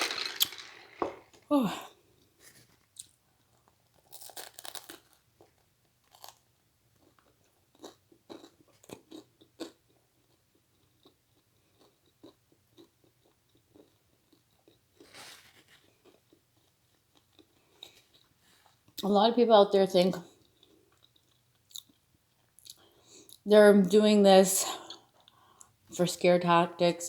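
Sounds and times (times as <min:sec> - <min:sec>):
person chewing crunchy food: 0:03.0 - 0:15.0, 0:20.3 - 0:23.4.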